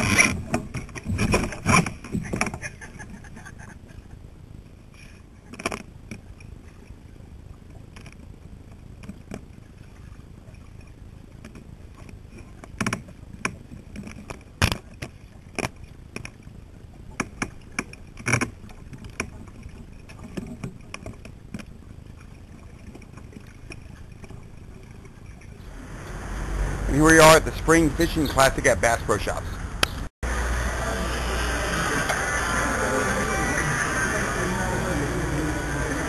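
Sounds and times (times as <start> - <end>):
low rumble: 25.4 - 36.0.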